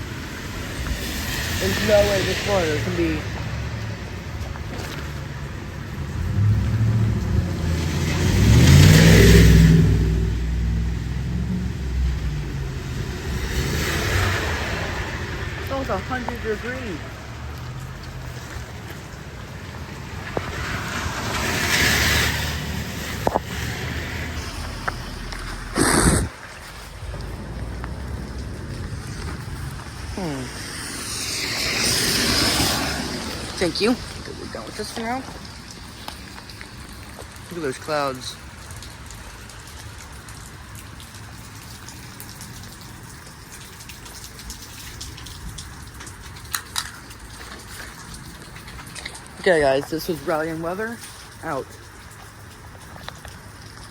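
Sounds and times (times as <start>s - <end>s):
steady rain falling: 0.0s - 53.9s
vehicle passing hiss: 0.1s - 3.8s, 20.0s - 36.8s
raindrop taps: 0.7s - 8.8s, 12.0s - 21.5s, 23.0s - 25.6s, 26.3s - 53.9s
steady low rumble: 22.8s - 36.0s.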